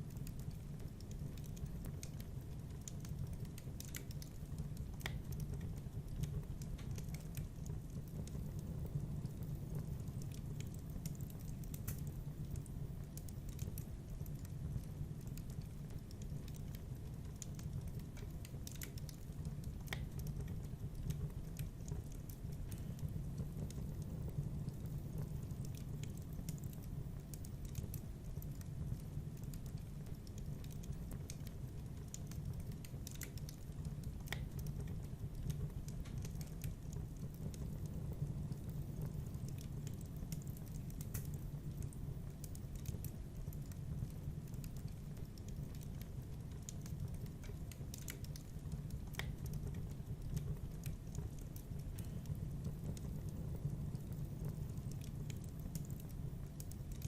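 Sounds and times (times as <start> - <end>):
wood fire crackling: 0.0 - 57.0
sharp pops of fire: 9.3 - 12.2.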